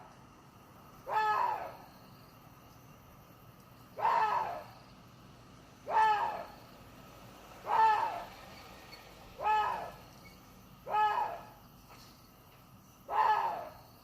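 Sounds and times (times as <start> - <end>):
deer calling: 10.9 - 11.5.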